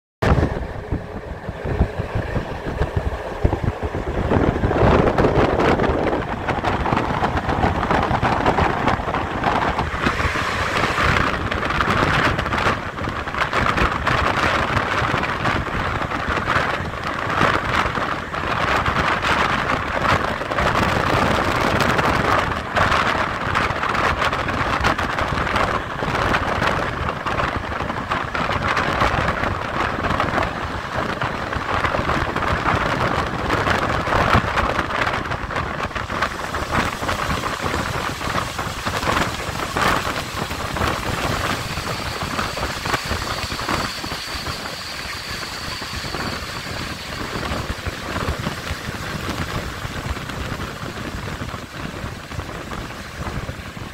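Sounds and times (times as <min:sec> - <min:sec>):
air rushing past window: 0:00.2 - 0:53.9
train wheels clacking: 0:25.3 - 0:51.6
faint high whine: 0:35.9 - 0:50.1.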